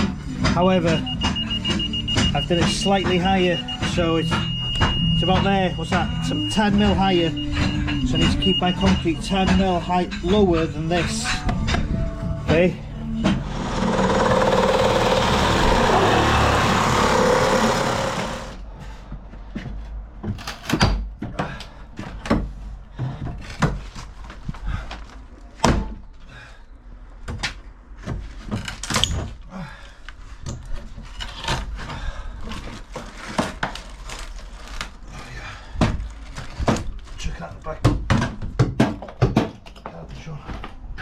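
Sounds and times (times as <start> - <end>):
knocks and thuds: 0.0 - 6.2, 37.8 - 39.7
loud steady noise: 12.8 - 18.6.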